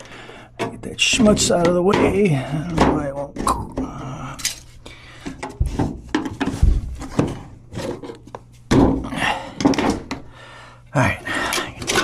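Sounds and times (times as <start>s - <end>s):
metal scraps clattering and scraping: 11.3s - 12.0s.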